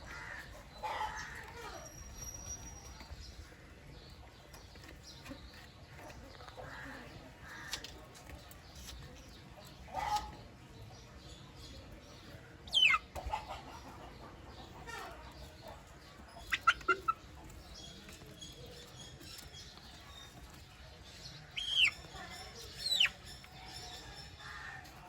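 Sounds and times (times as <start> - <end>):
chick peeping: 11.8 - 24.4
chicks calling: 12.7 - 17.7, 21.2 - 24.4.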